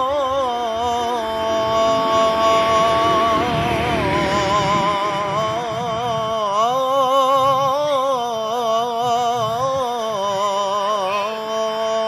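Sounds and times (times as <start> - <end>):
man chanting call to prayer: 0.0 - 12.0
low background rumble: 0.4 - 7.8.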